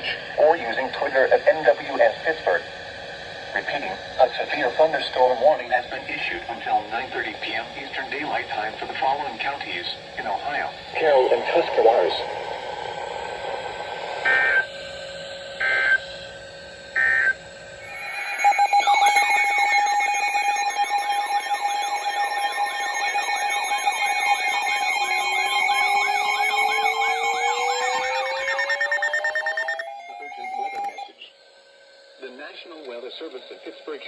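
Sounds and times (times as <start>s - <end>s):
steady tone: 0.4s - 16.0s, 17.2s - 32.3s
warbling siren-like alarm tones: 0.8s - 6.5s, 10.3s - 16.2s, 16.9s - 31.2s
digital header bursts: 17.8s - 31.1s.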